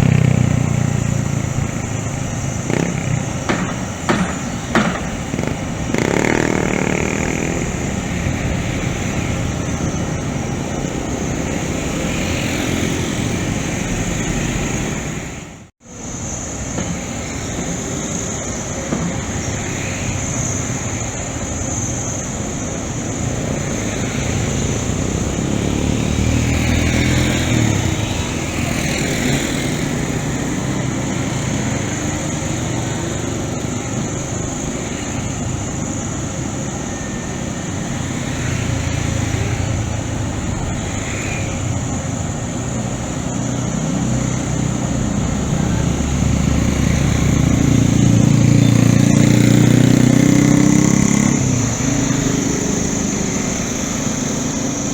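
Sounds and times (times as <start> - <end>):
excavator diesel engine running: 0.0 - 15.2.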